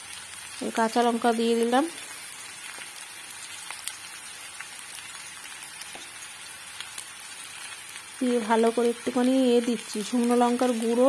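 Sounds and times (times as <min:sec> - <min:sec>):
vegetables sizzling in oil: 0:00.0 - 0:11.0
small pops and crackles: 0:01.9 - 0:09.4.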